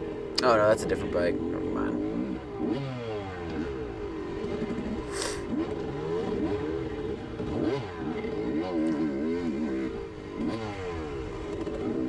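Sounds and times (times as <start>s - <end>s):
dirt bike engine revving: 2.0s - 12.0s
short rush of hiss: 5.1s - 5.4s.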